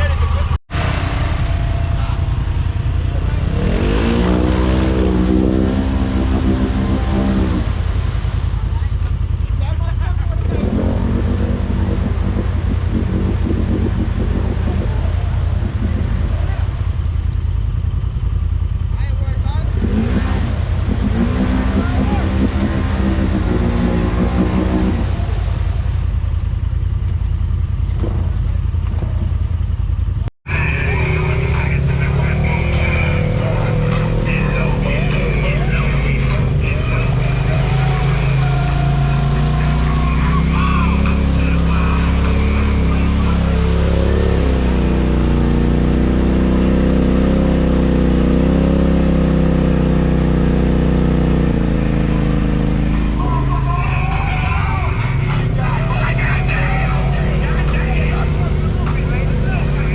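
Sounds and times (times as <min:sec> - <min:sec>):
vehicle engine droning: 0:00.0 - 0:59.9
music: 0:30.5 - 0:40.0, 0:53.0 - 0:59.9.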